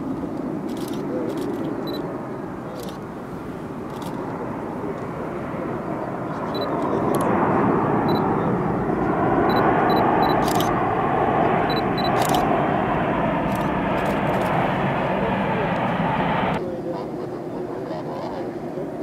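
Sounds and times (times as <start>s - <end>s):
jet engines roaring: 0.0s - 19.0s
camera shutter clicks: 10.4s - 10.7s, 12.2s - 12.4s.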